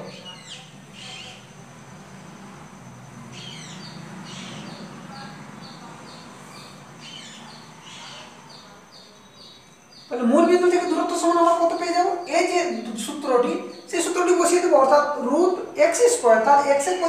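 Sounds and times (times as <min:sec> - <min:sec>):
bird calling: 0:00.0 - 0:02.0, 0:02.7 - 0:15.8.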